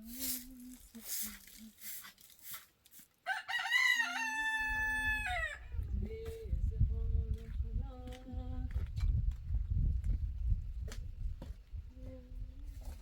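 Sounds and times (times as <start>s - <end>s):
rooster crowing: 3.2s - 5.7s.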